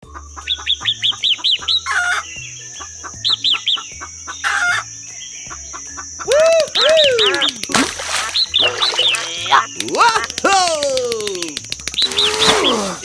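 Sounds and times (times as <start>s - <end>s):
chickens clucking: 0.0s - 10.4s
rapid high chirps: 0.0s - 13.0s
rooster-like calls: 6.2s - 7.6s, 12.0s - 13.0s.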